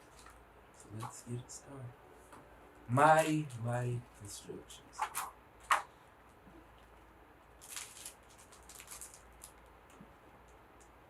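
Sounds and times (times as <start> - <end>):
low room hum: 0.0 - 11.0
book pages rustling and turning: 7.6 - 10.1.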